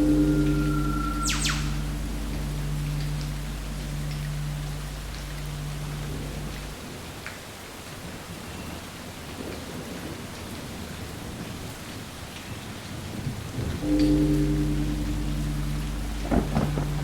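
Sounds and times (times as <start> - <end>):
thunder rumbling: 0.0 - 7.0, 12.9 - 17.0
rain falling: 0.0 - 17.0.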